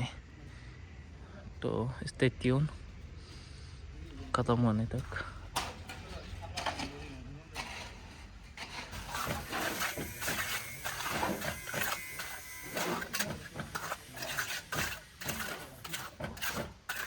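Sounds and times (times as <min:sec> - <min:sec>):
scraping from building work: 0:05.1 - 0:17.0.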